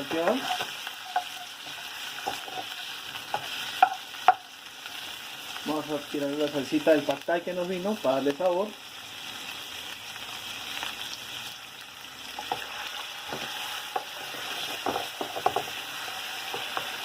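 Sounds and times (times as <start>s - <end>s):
utensil scraping a wok: 0.0s - 4.4s, 12.4s - 17.0s
food sizzling in a wok: 0.0s - 17.0s.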